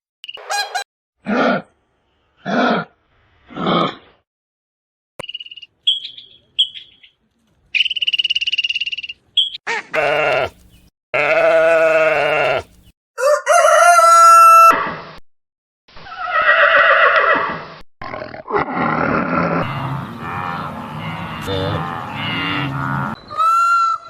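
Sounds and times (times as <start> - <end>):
farm animal calls: 7.8 - 12.9, 19.6 - 24.0.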